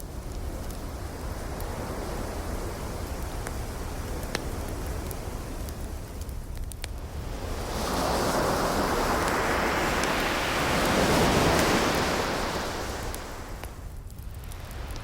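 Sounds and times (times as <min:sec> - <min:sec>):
wood fire crackling: 0:00.0 - 0:15.0
ocean wave surging: 0:07.5 - 0:13.6.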